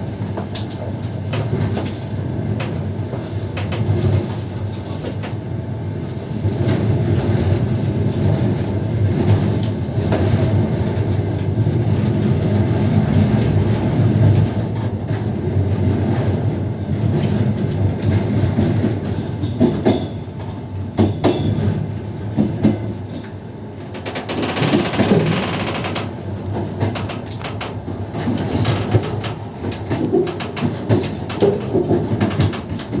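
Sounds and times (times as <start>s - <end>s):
train wheels rumbling on track: 0.0s - 33.0s
wheels clacking over rail joints: 18.8s - 33.0s.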